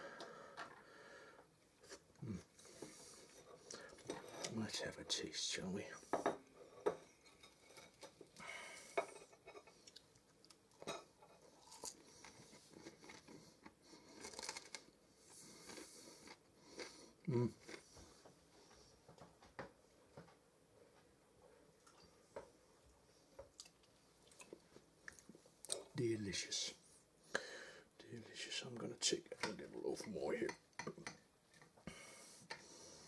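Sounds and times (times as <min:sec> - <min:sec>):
chewing with soft crunching: 0:09.3 - 0:19.3, 0:20.3 - 0:25.9.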